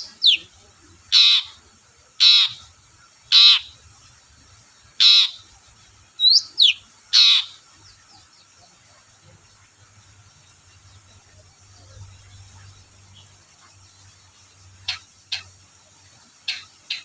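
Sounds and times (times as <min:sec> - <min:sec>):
bird harsh calls: 0:00.0 - 0:03.8, 0:04.9 - 0:05.6, 0:06.2 - 0:08.3, 0:14.8 - 0:15.6, 0:16.4 - 0:17.0.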